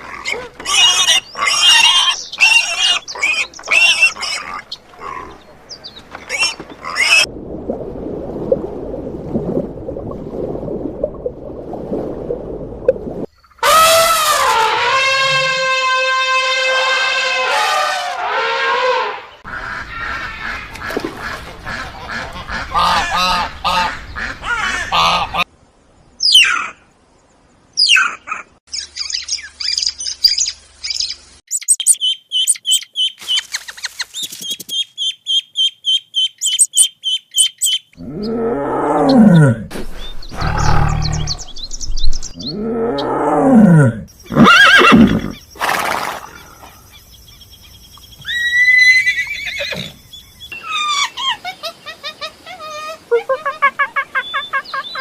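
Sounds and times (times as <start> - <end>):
animal honking: 13.6 - 20.6.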